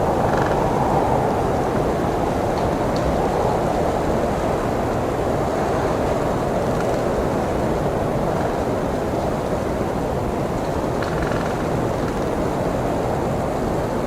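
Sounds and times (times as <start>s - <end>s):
blizzard wind rushing: 0.0s - 11.0s.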